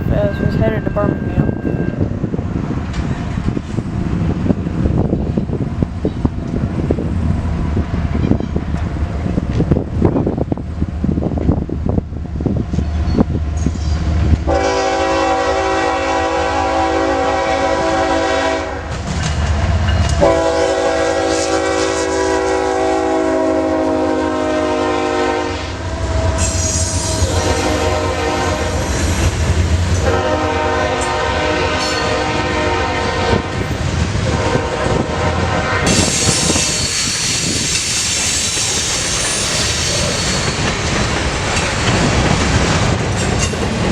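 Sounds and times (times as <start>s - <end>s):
wheels clattering on rails: 7.8s - 10.6s, 18.9s - 20.3s, 35.9s - 43.9s
locomotive horn blasts: 14.5s - 18.9s, 20.2s - 25.9s, 27.2s - 28.8s, 30.0s - 33.6s, 34.3s - 36.1s.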